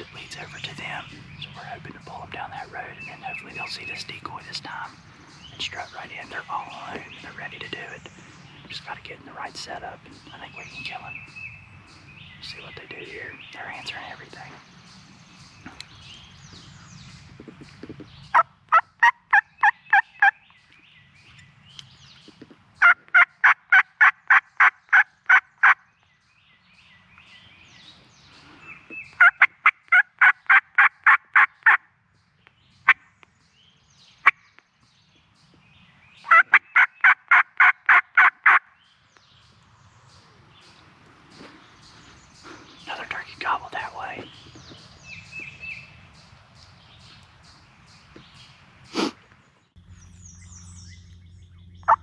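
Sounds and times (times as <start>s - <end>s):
turkey call yelps: 36.3s - 38.6s
turkey gobbles: 36.3s - 38.6s.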